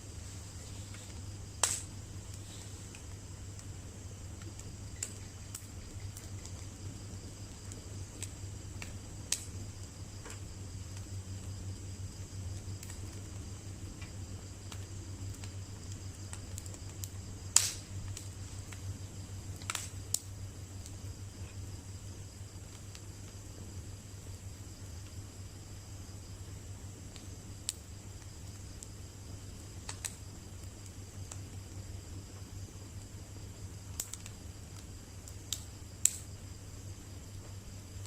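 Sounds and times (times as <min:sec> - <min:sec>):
bonfire crackling and popping: 0:00.0 - 0:38.0
steady low hum: 0:00.0 - 0:38.0.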